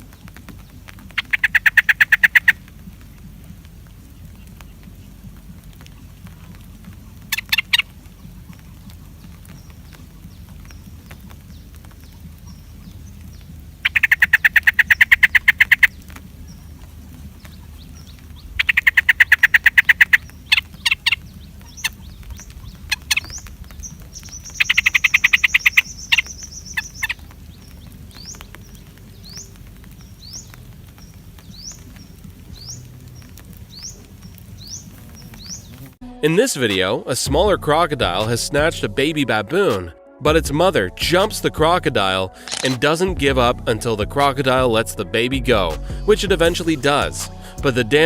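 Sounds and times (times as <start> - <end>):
bird pulsing trills: 0.2 - 36.0
bird rising chirps: 4.0 - 36.0.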